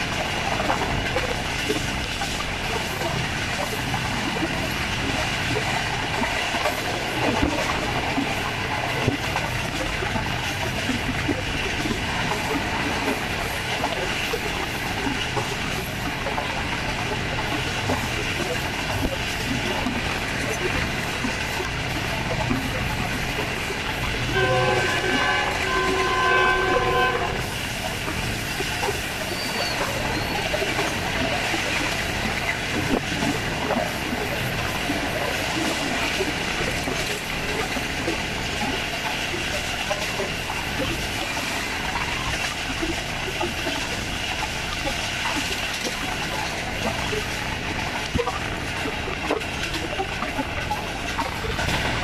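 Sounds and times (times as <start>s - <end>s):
train rolling noise: 0.0s - 52.0s
locomotive horn chord: 24.3s - 27.6s.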